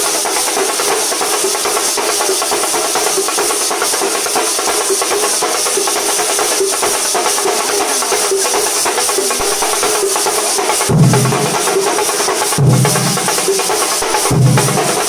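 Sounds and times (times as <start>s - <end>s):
cymbals: 0.0s - 15.0s
rapid drumming: 0.0s - 15.0s
bass drum booms: 10.9s - 11.8s, 12.6s - 15.0s.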